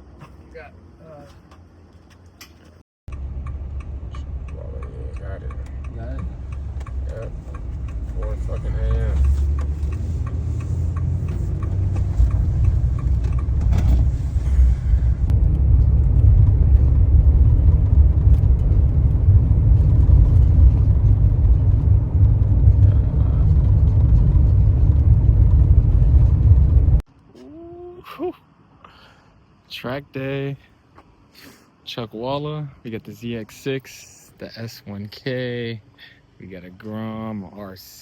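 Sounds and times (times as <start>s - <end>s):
vehicle driving rumble: 0.0s - 27.6s.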